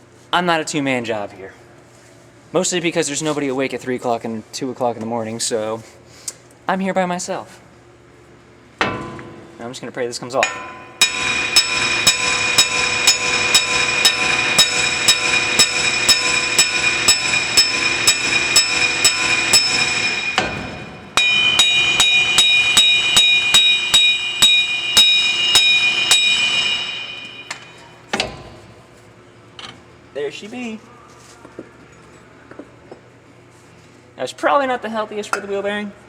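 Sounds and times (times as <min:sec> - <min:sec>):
metal ringing: 0:10.4 - 0:28.6
pneumatic air hammer rattling on metal: 0:11.0 - 0:28.4.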